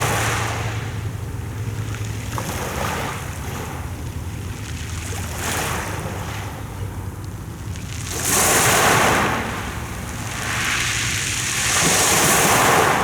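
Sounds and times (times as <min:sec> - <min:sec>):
sea waves washing in: 0:07.4 - 0:13.0.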